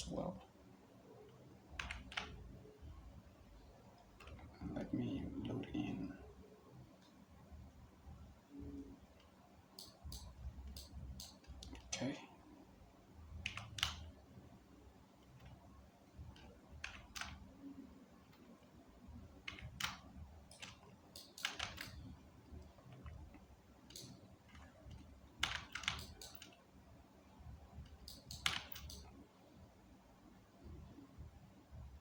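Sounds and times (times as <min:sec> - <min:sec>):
faint low hum: 0:00.0 - 0:32.0
keyboard and mouse clicks: 0:01.2 - 0:02.4, 0:03.9 - 0:06.1, 0:08.6 - 0:12.0, 0:13.4 - 0:14.2, 0:15.2 - 0:17.6, 0:19.3 - 0:26.7, 0:27.8 - 0:29.2.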